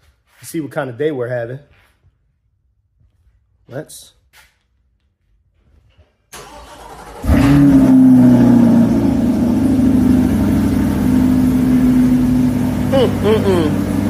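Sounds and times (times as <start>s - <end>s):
car engine starting and idling: 6.3s - 14.0s.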